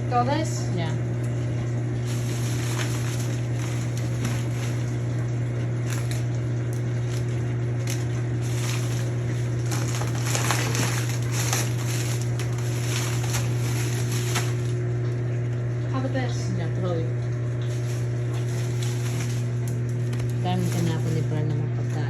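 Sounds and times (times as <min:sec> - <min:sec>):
low machine hum: 0:00.0 - 0:22.0
plastic packaging rustling: 0:01.9 - 0:15.2, 0:17.6 - 0:21.6.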